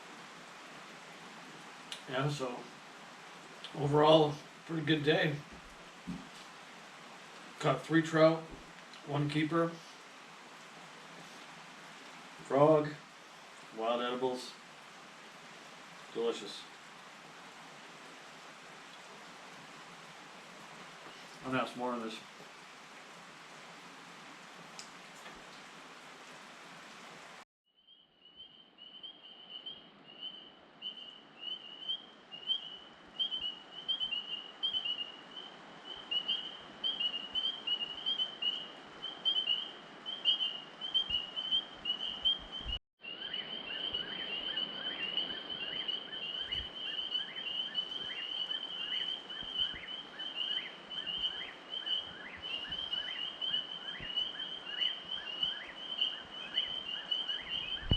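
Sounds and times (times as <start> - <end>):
rapid high chirping calls: 28.3 - 57.9.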